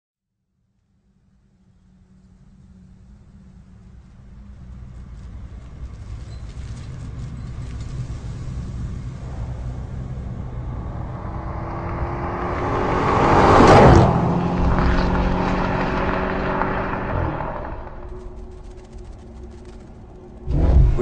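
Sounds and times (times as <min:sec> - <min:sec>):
car engine driving past: 0:08.0 - 0:21.0.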